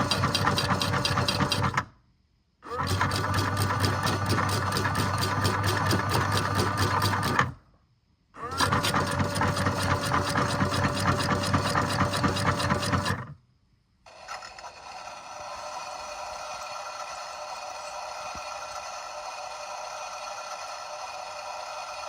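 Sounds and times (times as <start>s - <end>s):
small machine clattering: 0.0s - 1.9s, 2.8s - 7.6s, 8.5s - 13.4s.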